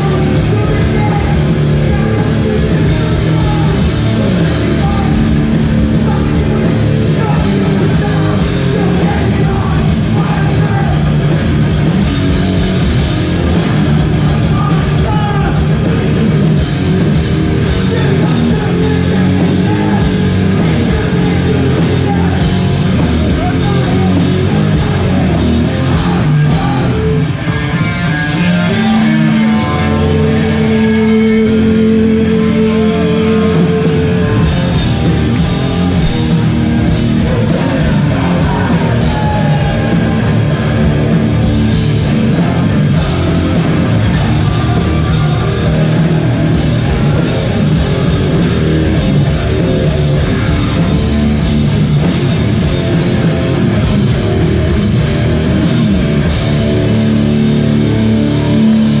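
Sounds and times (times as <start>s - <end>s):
distorted electric guitars: 0.0s - 59.0s
drums: 0.0s - 59.0s
hardcore band playing live: 0.0s - 59.0s
vocals: 0.0s - 59.0s.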